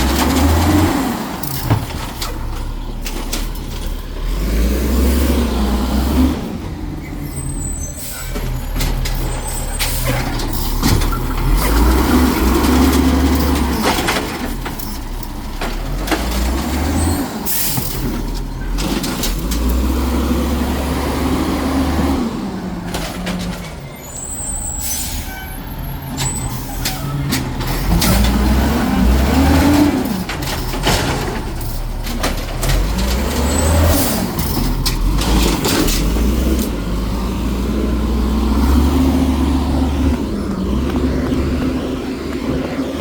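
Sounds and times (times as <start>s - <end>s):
clanks and clatter: 0.0s - 4.4s, 7.4s - 20.1s, 22.8s - 24.0s, 26.1s - 37.0s
garbage truck engine revving: 0.0s - 43.0s.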